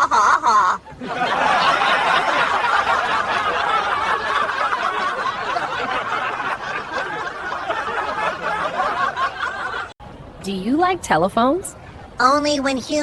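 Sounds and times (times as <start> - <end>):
person laughing and chuckling: 0.0 - 0.8.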